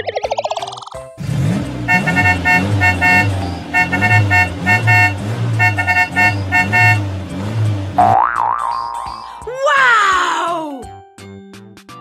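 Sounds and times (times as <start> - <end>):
engine revving: 1.2 - 8.2
cartoon car horn beeping: 1.8 - 7.1.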